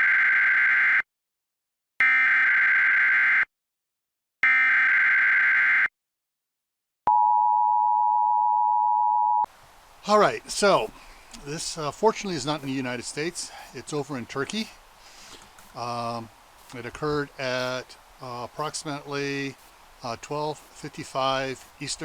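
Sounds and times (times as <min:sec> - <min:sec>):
harsh electronic data bursts: 0:15.4 - 0:22.0.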